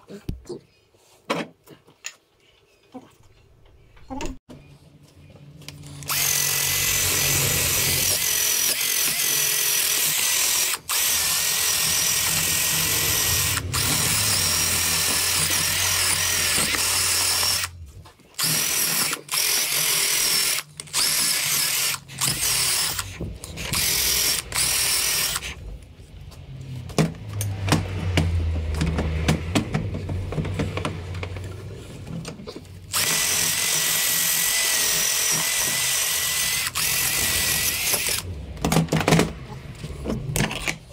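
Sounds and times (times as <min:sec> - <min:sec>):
power tool whining: 0:05.7 - 0:25.7, 0:27.4 - 0:39.8.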